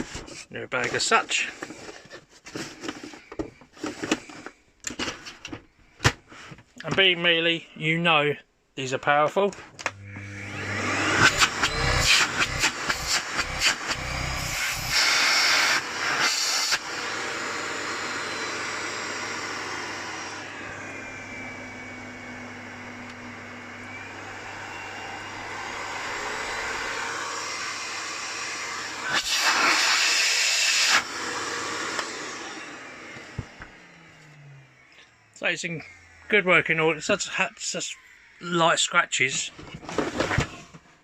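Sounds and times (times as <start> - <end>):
vacuum cleaner running: 9.8 - 37.6.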